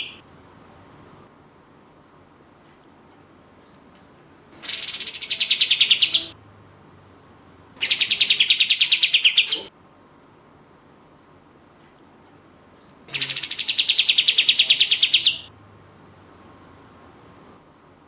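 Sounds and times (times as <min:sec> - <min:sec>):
songbird trilled bursts: 0:00.0 - 0:00.2.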